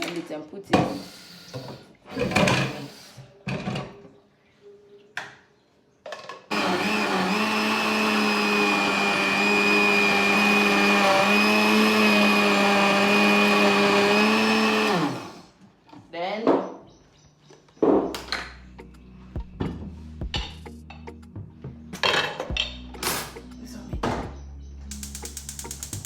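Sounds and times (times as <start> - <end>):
electric blender running: 0.9 - 3.0, 6.5 - 15.6.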